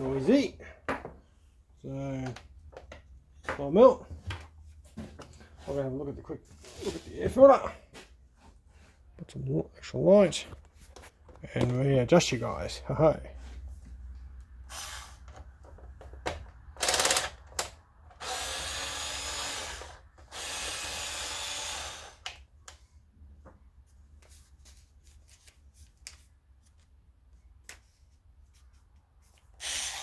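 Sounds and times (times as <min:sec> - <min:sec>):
power drill running: 0:16.8 - 0:17.4, 0:18.2 - 0:22.3, 0:29.6 - 0:30.0.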